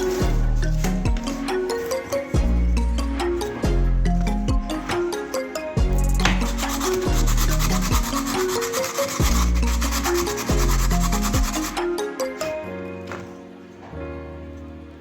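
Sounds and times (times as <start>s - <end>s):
music with deep bass beat: 0.0s - 1.7s, 2.4s - 5.1s, 5.8s - 8.5s, 9.2s - 11.9s
sanding on wood: 6.1s - 11.9s.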